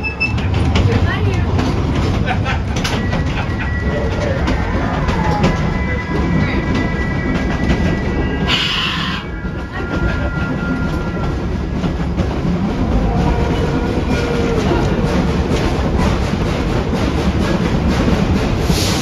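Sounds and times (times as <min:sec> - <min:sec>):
train rumbling and wheel clatter: 0:00.0 - 0:19.0
high wheel squeal: 0:02.8 - 0:11.6.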